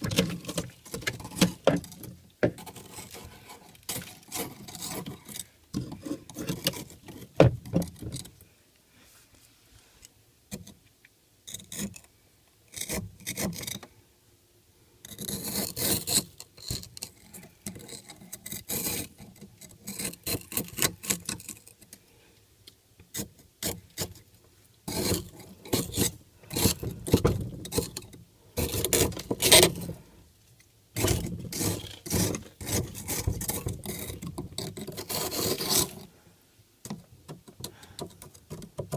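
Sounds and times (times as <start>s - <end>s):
ice scraping in freezer: 2.6s - 7.4s, 15.1s - 21.6s, 24.9s - 30.0s, 31.0s - 36.1s.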